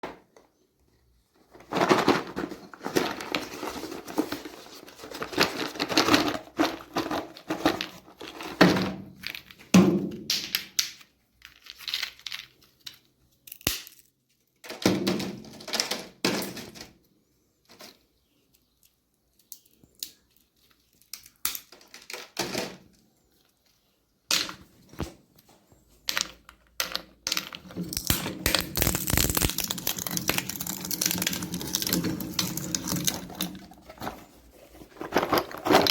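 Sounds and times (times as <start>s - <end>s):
walnuts crackling in a grinder: 27.9s - 33.7s.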